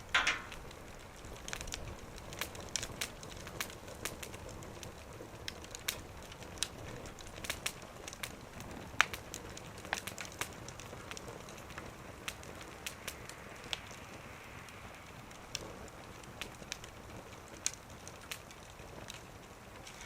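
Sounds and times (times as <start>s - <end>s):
low steady hiss: 0.0s - 20.0s
wood fire popping: 0.0s - 20.0s.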